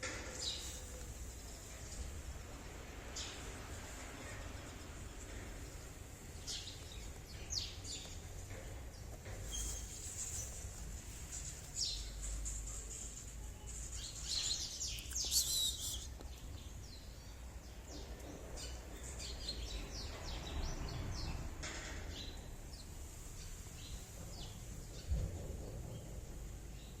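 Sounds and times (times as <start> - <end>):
small birds chirping: 0.4 - 21.5.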